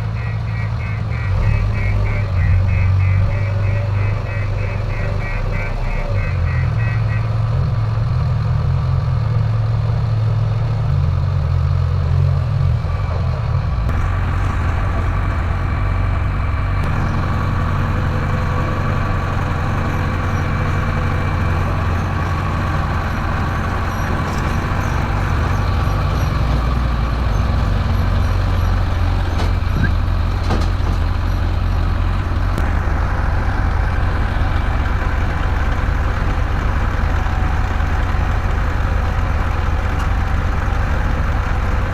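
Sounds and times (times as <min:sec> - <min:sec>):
heavy diesel engine running: 0:00.0 - 0:41.9.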